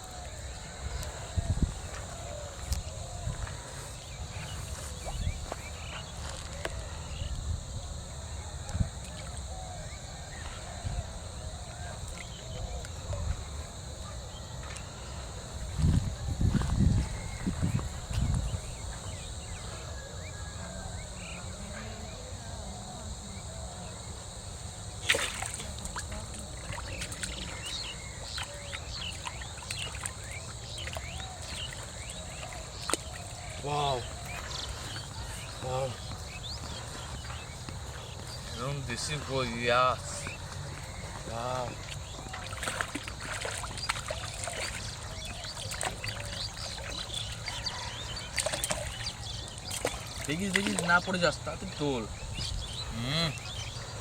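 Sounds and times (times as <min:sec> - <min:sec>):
small birds chirping: 0:23.1 - 0:54.0
water splashing and dripping: 0:25.0 - 0:35.7, 0:40.5 - 0:51.3.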